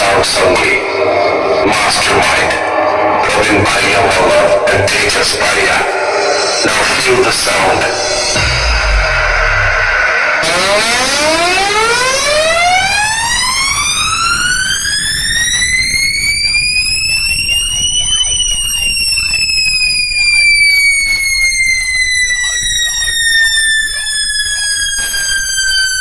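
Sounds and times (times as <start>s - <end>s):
synthesized siren sweep tone: 0.0s - 19.5s.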